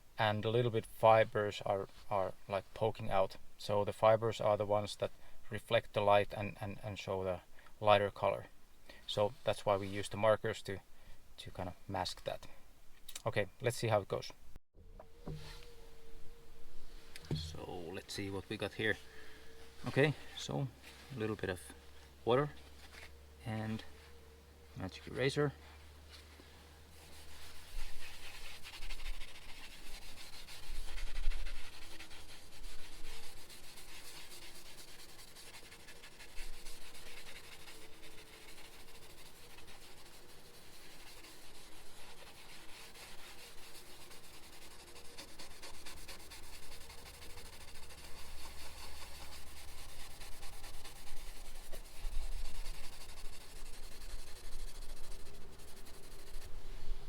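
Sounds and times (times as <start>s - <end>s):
sponge scrubbing plastic panel: 27.0s - 56.5s.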